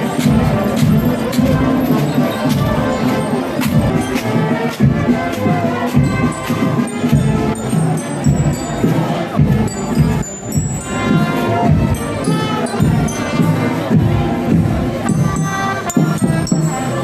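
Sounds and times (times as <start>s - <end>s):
crowd noise: 0.0s - 17.0s
drum and percussion strikes: 0.0s - 17.0s
procession band playing: 0.0s - 17.0s.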